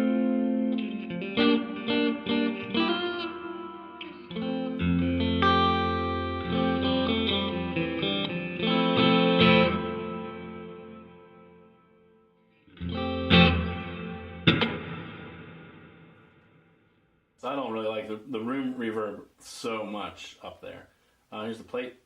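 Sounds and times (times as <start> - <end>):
electric guitar with long reverb: 0.0 - 17.1.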